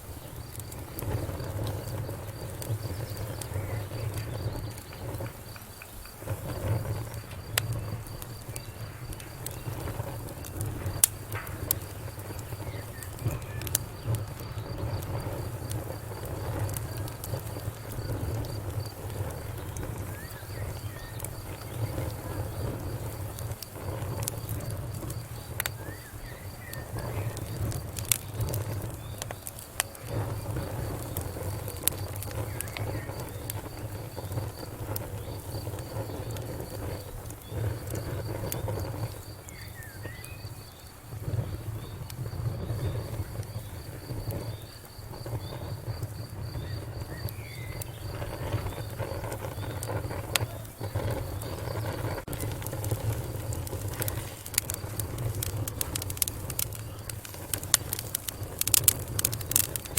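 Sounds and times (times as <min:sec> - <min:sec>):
cricket chirping: 0:00.0 - 0:59.9
low rumble of flames: 0:00.0 - 0:59.9
wood fire crackling: 0:00.0 - 0:59.9.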